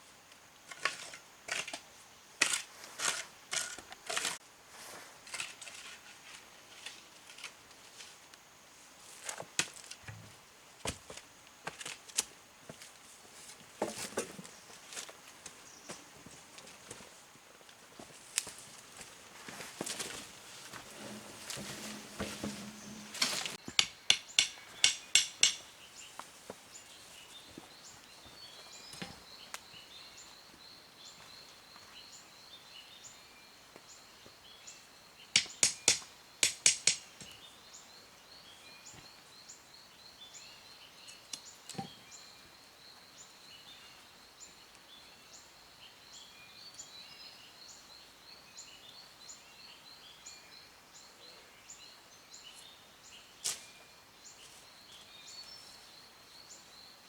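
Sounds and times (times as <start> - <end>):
hand tool sharp knocks: 21.0 - 25.6.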